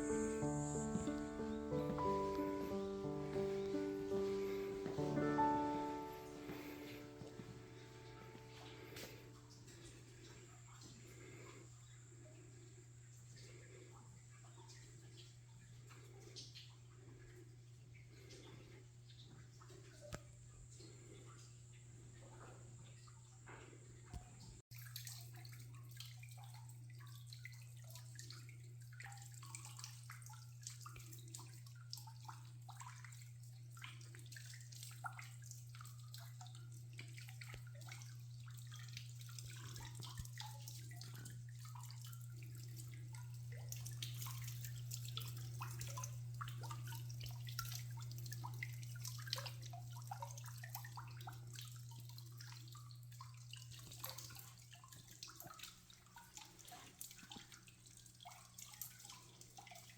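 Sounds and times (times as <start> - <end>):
steady low hum: 0.0 - 18.7
water trickling and dripping: 0.0 - 59.9.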